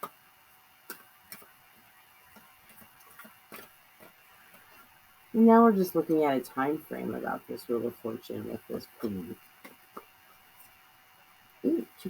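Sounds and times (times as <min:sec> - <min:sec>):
faint steady whine: 0:00.0 - 0:12.0
cards clicking and tapping: 0:00.8 - 0:04.7.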